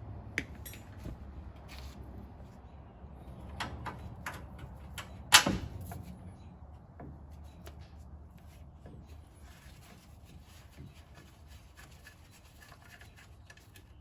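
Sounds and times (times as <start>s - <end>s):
metal tools clinking on metal: 0.6s - 1.0s.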